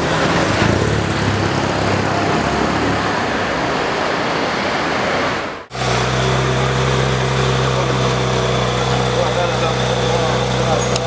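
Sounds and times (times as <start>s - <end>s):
road traffic noise: 0.0s - 11.0s
car engine idling: 5.7s - 11.0s.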